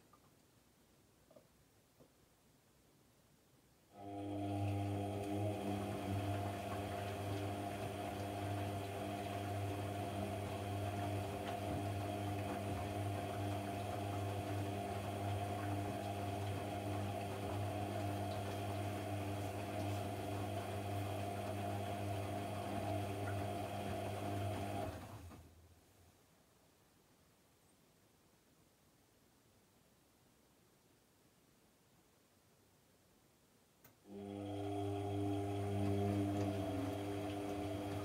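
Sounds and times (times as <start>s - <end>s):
washing machine running: 4.0s - 25.4s, 34.1s - 38.0s.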